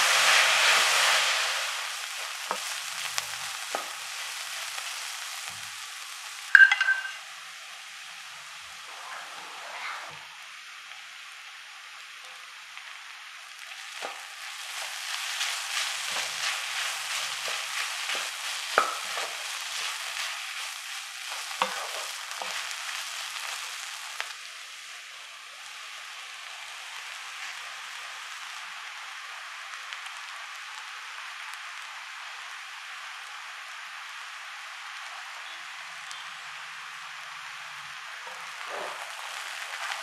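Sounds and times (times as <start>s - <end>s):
vegetables sizzling in a wok: 0.0s - 40.0s
spatula scraping a pan: 14.0s - 23.6s, 38.3s - 40.0s.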